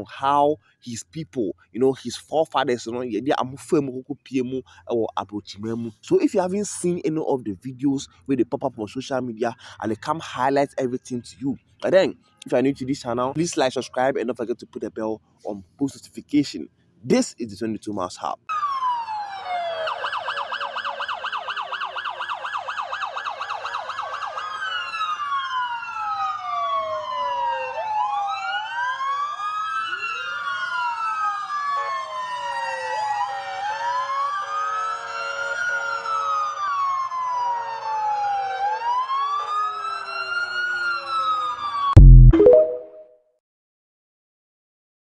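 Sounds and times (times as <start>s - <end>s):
sirens yelping and wailing: 18.5s - 42.0s.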